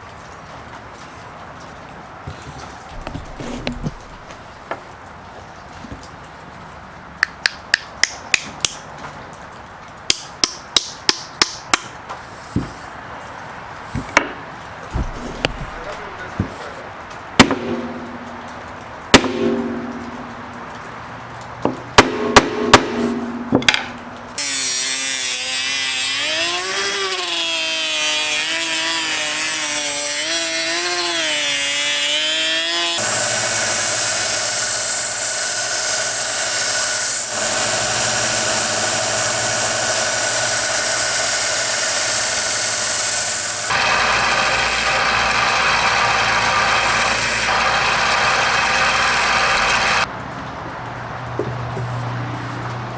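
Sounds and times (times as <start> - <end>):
sharp knocks: 2.3 - 4.5, 14.0 - 16.6
power tool running on wood: 2.9 - 4.4, 14.9 - 16.3, 24.4 - 50.1.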